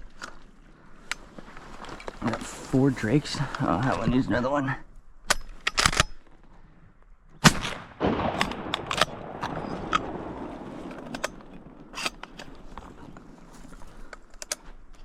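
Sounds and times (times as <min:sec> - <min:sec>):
shotgun shots: 0:07.4 - 0:12.7.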